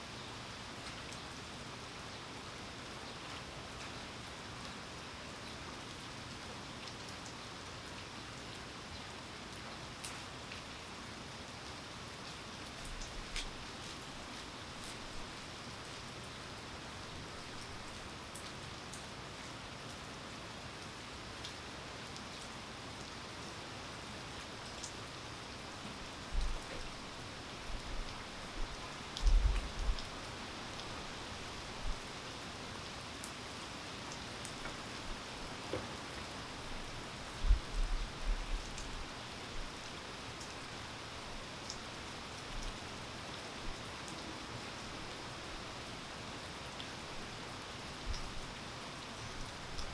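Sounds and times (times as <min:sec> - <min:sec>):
steady rain falling: 0:00.0 - 0:49.9
raindrops ticking close by: 0:11.4 - 0:20.0, 0:24.3 - 0:49.9.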